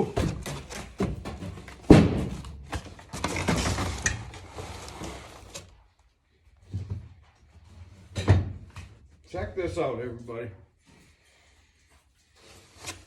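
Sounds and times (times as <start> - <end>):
loud knock on box: 1.9 - 2.5
packaging scraping and rustling: 3.0 - 5.8.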